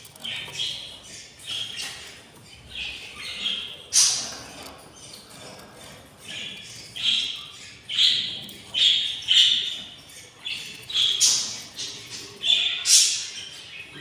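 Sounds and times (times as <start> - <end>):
budgerigar chicks begging calls: 0.2 - 5.5.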